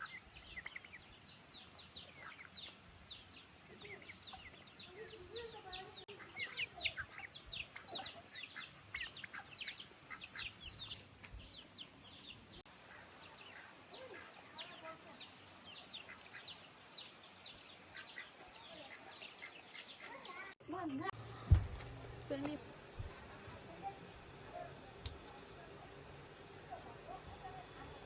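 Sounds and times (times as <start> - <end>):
chickens peeping: 0.0 - 14.6.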